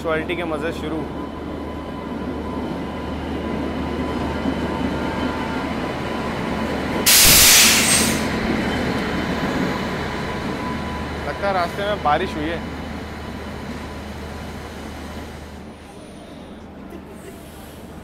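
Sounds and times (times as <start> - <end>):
train rumbling past: 0.0 - 18.0
air hissing: 7.1 - 8.3.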